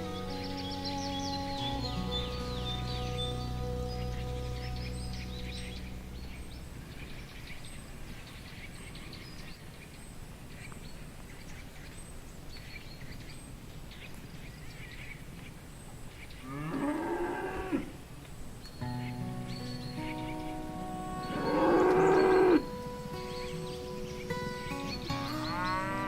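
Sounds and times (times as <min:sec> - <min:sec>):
background hiss: 0:00.0 - 0:26.0
cow mooing: 0:16.5 - 0:18.0, 0:21.2 - 0:22.7.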